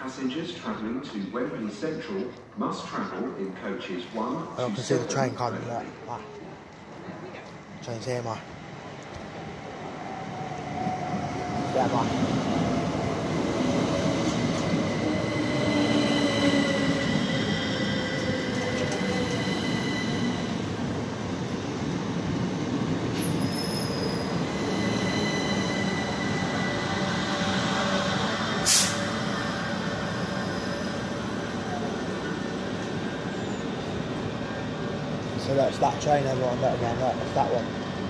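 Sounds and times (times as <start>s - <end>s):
train wheel and running noise: 14.2s - 21.3s
high brake squeal: 23.2s - 31.2s
air hiss: 28.6s - 29.2s.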